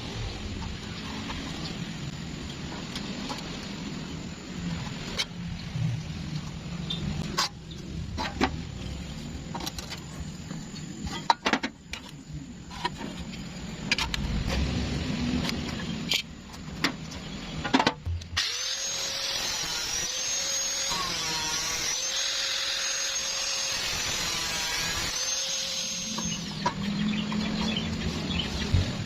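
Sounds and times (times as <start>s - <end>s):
electric power tool running: 18.4s - 26.6s.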